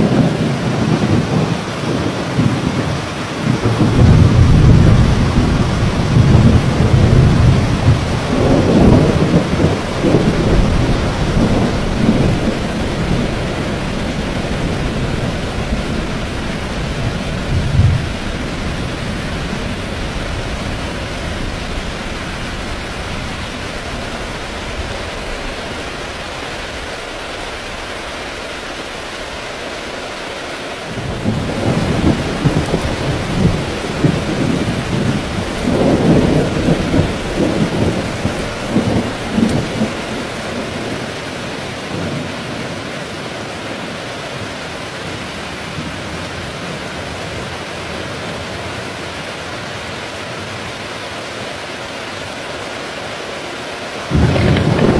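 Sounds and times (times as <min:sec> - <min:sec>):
thunder rumbling: 0:00.0 - 0:29.4, 0:30.9 - 0:42.9, 0:54.1 - 0:54.9
heavy rain pouring: 0:00.0 - 0:54.9.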